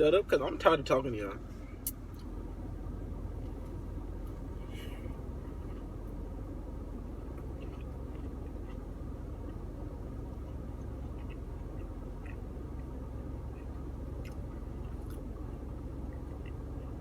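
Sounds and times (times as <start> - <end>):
steady low rumble: 0.0 - 17.0
chewing crunchy food: 7.0 - 17.0.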